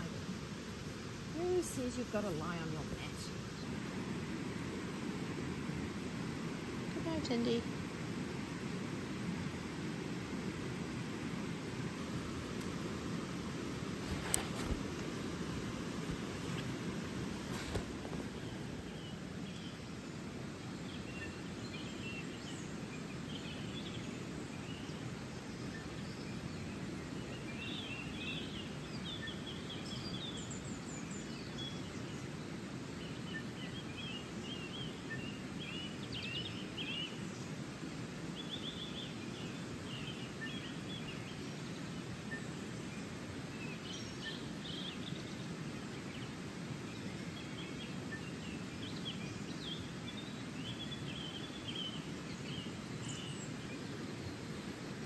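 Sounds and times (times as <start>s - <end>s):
running water rushing: 0.0s - 22.0s
small birds chirping: 0.0s - 55.0s.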